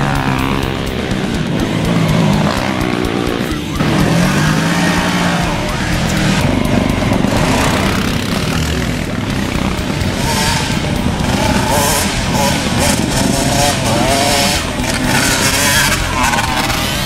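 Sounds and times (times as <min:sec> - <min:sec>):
race vehicle engines revving: 0:00.0 - 0:17.0.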